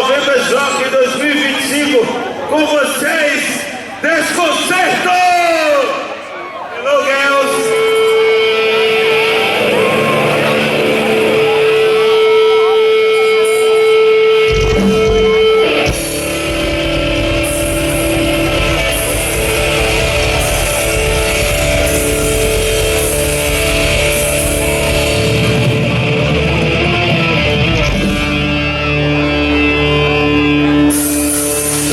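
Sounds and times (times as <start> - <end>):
rock band playing live: 7.4 - 31.9
electric guitar note ringing: 7.5 - 31.9.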